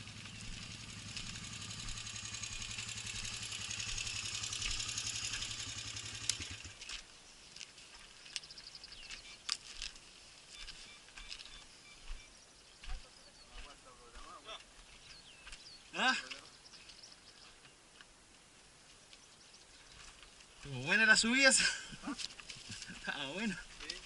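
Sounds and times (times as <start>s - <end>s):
atv engine running: 0.0s - 7.0s.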